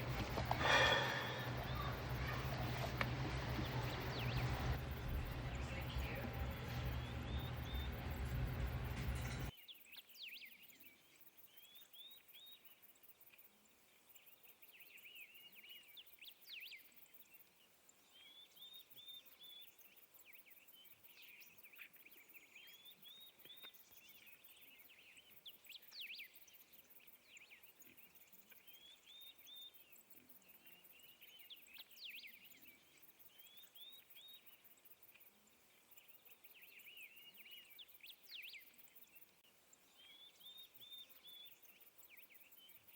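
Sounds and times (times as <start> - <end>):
loud noise with low hum: 0.0 - 9.5
birds chirping and trilling: 0.0 - 10.5.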